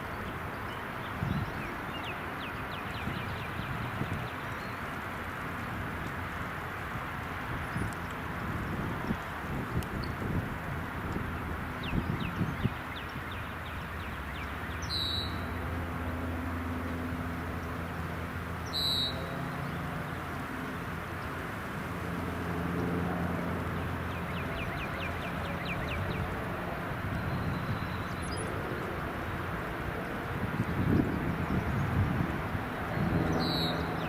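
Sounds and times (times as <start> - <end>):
distant aircraft engine drone: 0.0 - 34.0
birds chirping: 11.4 - 15.7, 18.6 - 21.3, 23.7 - 26.4, 32.8 - 34.0.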